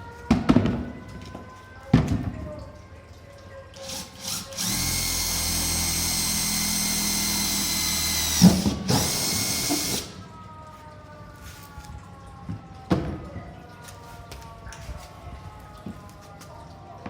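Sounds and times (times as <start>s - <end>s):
electric drill whine: 3.8s - 10.1s.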